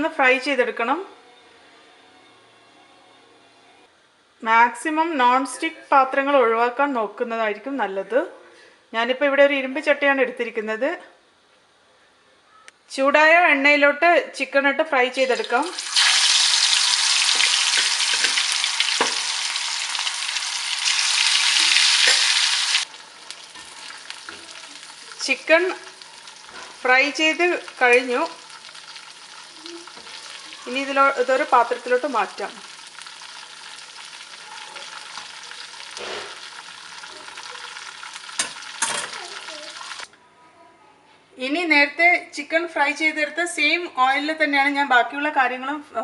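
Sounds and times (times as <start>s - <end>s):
chicken sizzling in hot oil: 15.2s - 40.1s.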